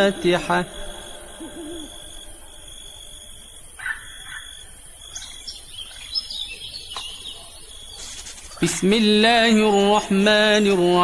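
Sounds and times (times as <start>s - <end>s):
bird chirps: 0.0s - 11.0s
insects trilling: 0.0s - 11.0s.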